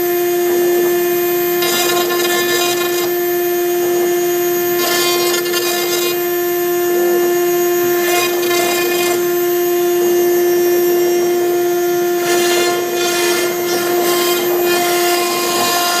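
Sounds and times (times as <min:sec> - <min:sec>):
router spindle whining: 0:00.0 - 0:16.0
bit cutting through board: 0:01.6 - 0:03.2, 0:04.7 - 0:06.4, 0:07.8 - 0:09.7, 0:12.1 - 0:16.0.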